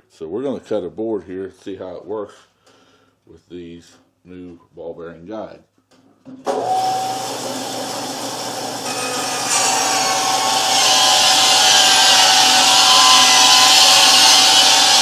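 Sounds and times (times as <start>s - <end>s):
bandsaw cutting wood: 6.5s - 15.0s
bandsaw motor hum: 6.5s - 15.0s.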